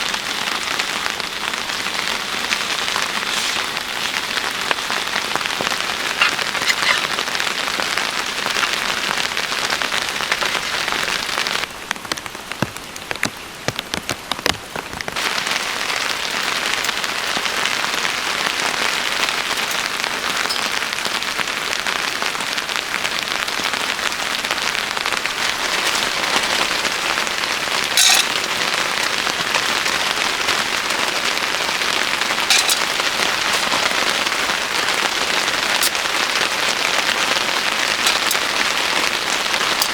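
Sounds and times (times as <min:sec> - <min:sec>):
steady rain hiss: 0:00.0 - 0:39.9
water drips ticking: 0:31.5 - 0:39.9.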